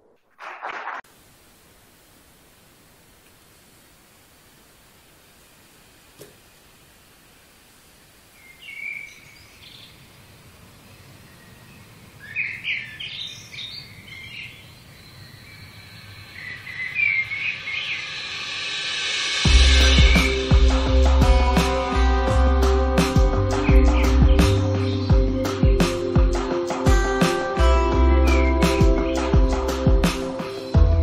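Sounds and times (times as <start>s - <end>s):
faint hiss: 1.1s - 27.7s
birds chirping: 8.0s - 18.7s, 19.6s - 30.9s
rising swell of noise: 15.8s - 24.7s
music with deep bass: 19.2s - 31.0s.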